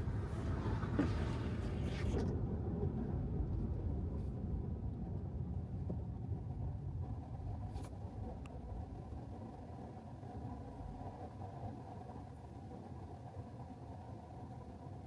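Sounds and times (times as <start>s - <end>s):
road and tyre rumble: 0.0s - 9.2s.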